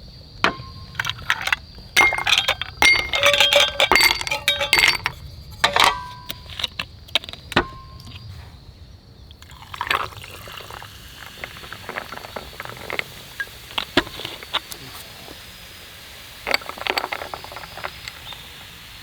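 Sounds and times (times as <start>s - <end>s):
ice clinking against glass: 0.4s - 8.2s, 9.4s - 14.7s, 16.5s - 18.7s
liquid pouring: 9.4s - 14.6s.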